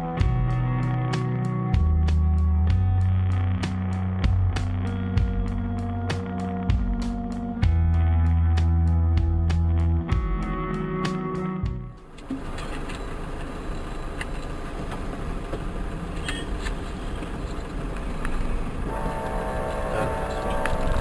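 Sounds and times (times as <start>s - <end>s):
guitar music: 0.0s - 12.1s, 18.9s - 21.0s
vehicle running noise: 0.0s - 21.0s
steady horn-like tone: 18.9s - 21.0s.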